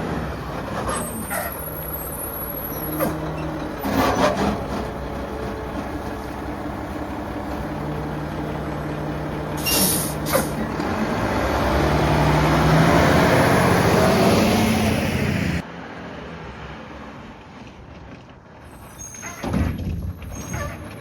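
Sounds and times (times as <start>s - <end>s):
truck engine running and revving: 0.0s - 19.1s
air brakes hissing: 9.6s - 10.6s.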